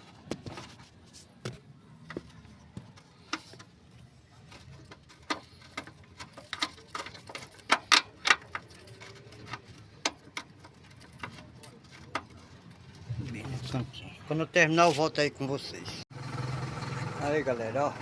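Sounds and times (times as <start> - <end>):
tools clicking and knocking on metal: 4.4 - 12.9.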